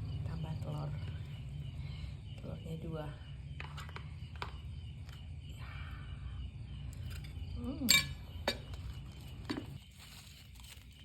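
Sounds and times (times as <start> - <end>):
utensil clinking against bowl: 7.9 - 8.7.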